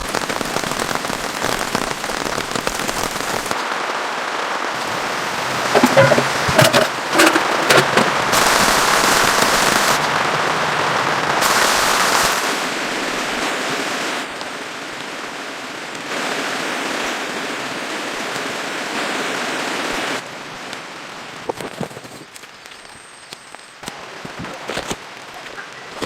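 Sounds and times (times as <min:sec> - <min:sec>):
rain pattering on plastic sheeting: 0:00.0 - 0:22.8.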